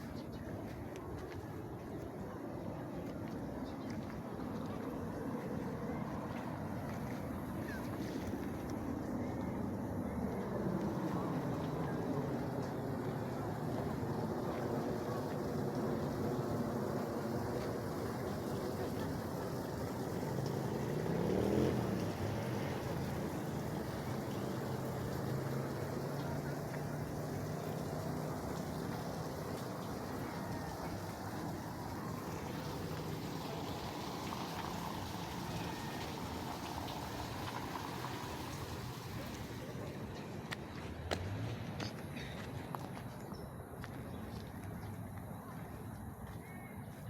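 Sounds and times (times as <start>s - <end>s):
outdoor background noise: 0.0s - 47.0s
motor engine running: 10.2s - 41.9s.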